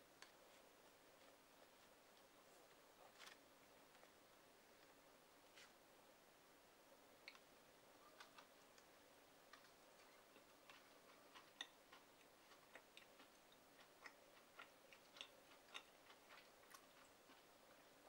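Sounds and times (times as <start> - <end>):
person chewing wet clicks: 8.2 - 8.9, 9.5 - 18.0.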